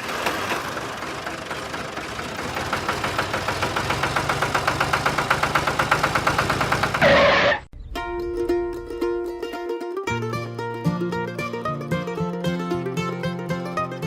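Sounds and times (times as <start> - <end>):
small engine ticking: 0.0 - 7.1.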